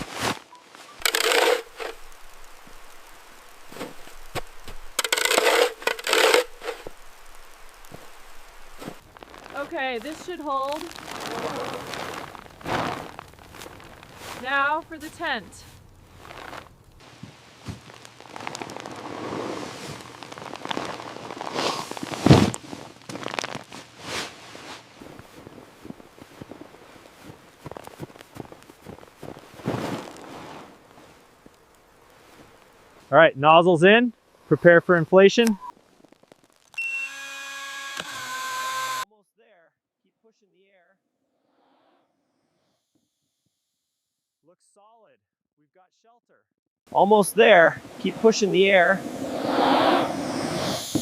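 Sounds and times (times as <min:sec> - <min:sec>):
crunching and scraping in snow: 0:00.0 - 0:33.2, 0:35.7 - 0:36.8, 0:47.4 - 0:51.0
tent fabric rustling and crackling: 0:00.0 - 0:33.2, 0:35.7 - 0:36.8, 0:47.4 - 0:51.0.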